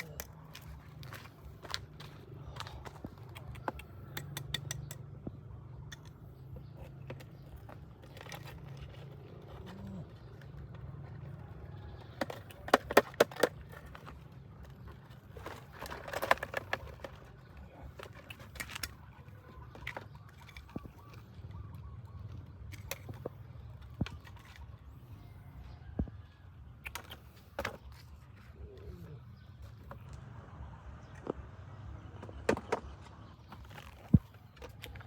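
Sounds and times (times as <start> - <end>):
clicks and rustles: 5.9 - 25.0.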